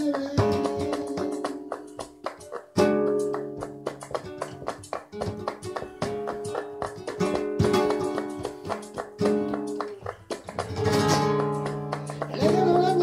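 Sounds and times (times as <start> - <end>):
person singing: 0.0 - 1.6, 12.0 - 13.0
acoustic guitar strumming: 0.0 - 13.0.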